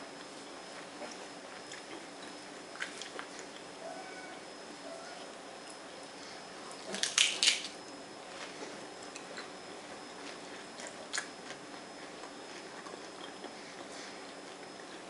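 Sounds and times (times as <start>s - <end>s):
close chewing: 0.1s - 3.8s, 10.2s - 15.0s
lettuce crunching: 1.5s - 3.8s, 6.8s - 7.8s, 10.2s - 15.0s.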